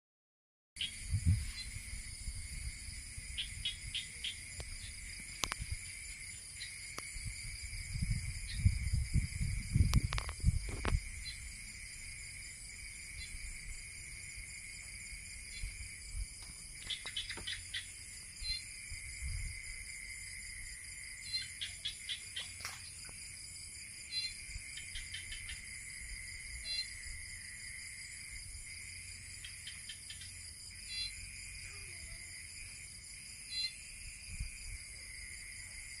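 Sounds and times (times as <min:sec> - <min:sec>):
night chorus of insects and frogs: 0:00.8 - 0:36.0
frogs calling in rapid clicks: 0:03.4 - 0:05.8, 0:09.7 - 0:11.4, 0:16.8 - 0:18.7, 0:21.2 - 0:23.2, 0:24.1 - 0:25.7, 0:26.5 - 0:28.0, 0:29.4 - 0:31.2, 0:33.5 - 0:33.8.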